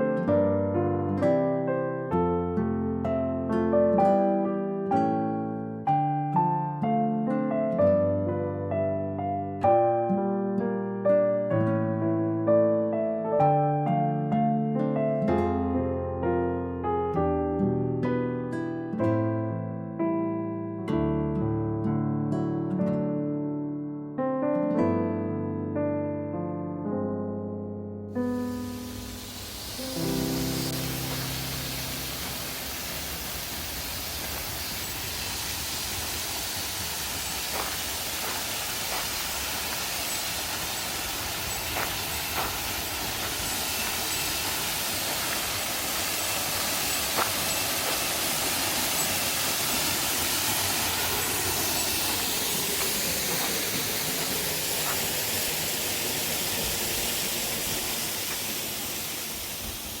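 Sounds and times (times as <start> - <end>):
waterfall rushing: 28.4 - 60.0.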